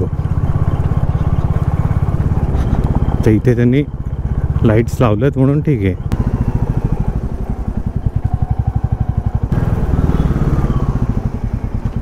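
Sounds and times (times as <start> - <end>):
motorcycle engine thumping: 6.0 - 12.0.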